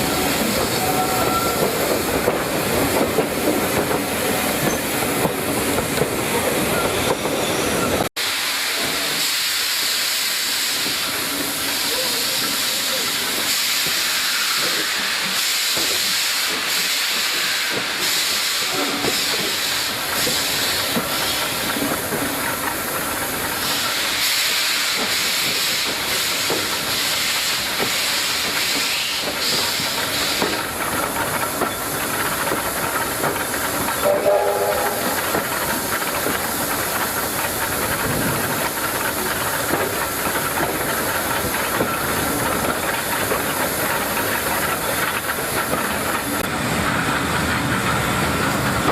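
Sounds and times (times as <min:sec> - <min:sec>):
steam locomotive hissing: 0:00.0 - 0:48.9
brief tone: 0:00.8 - 0:01.6.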